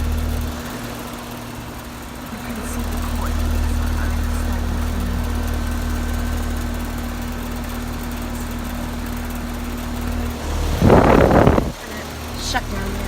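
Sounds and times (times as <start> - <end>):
heat pump humming: 0.0 - 13.0
steady tone: 0.0 - 13.0
loud rush of noise: 9.9 - 12.2.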